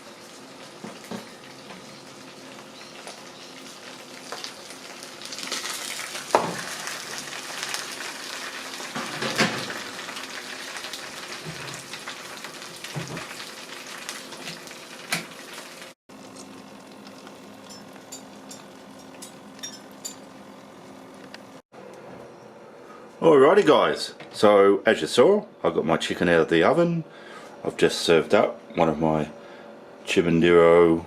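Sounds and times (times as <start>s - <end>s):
chicken sizzling in roasting tray: 0.0s - 20.0s.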